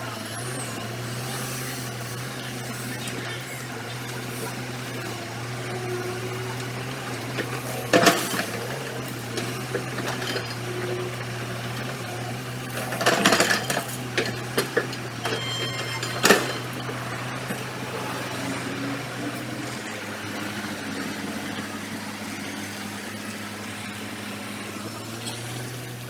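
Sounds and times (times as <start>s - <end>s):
excavator engine hum: 0.0s - 26.0s
metal clanking and rattling: 6.6s - 17.8s.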